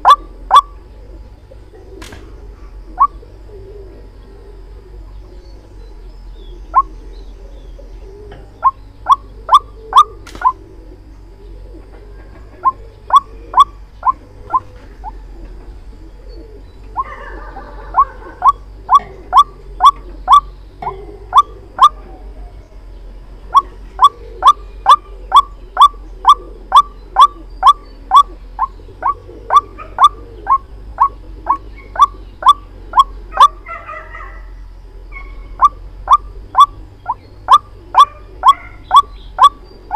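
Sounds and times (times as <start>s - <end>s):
waterhen calling sharp notes: 0.0s - 0.7s, 12.6s - 14.7s, 17.9s - 20.5s, 23.5s - 33.5s, 35.5s - 39.6s.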